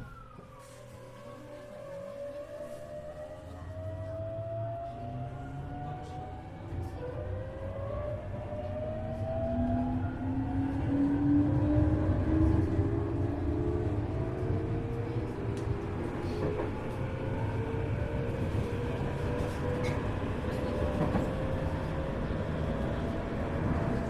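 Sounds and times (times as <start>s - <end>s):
wheels rumbling on rail: 0.0s - 24.0s.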